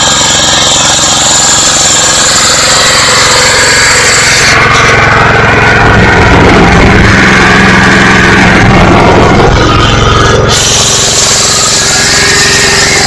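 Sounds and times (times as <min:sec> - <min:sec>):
diesel generator engine clatter: 0:00.0 - 0:13.0.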